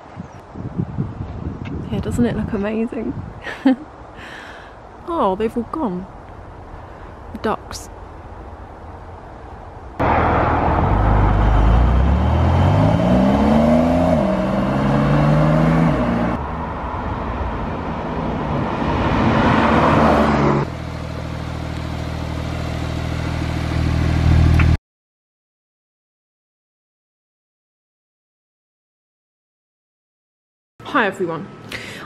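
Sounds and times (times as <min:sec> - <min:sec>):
car engine accelerating: 0:10.0 - 0:24.8.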